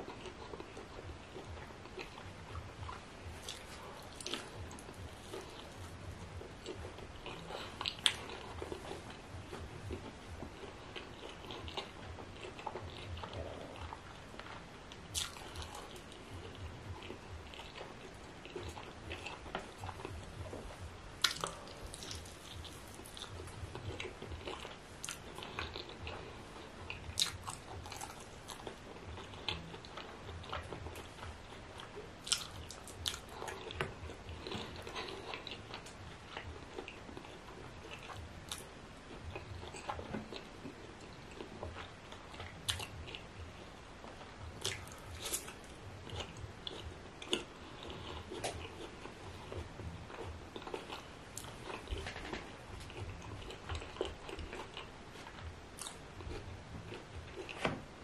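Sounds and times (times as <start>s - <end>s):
chewing meat: 0.0s - 57.7s
wet mouth sounds: 0.2s - 31.4s.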